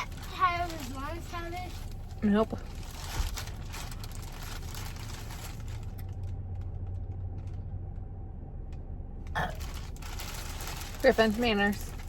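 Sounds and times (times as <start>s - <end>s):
packaging rustling and crinkling: 0.0s - 6.4s, 9.6s - 12.0s.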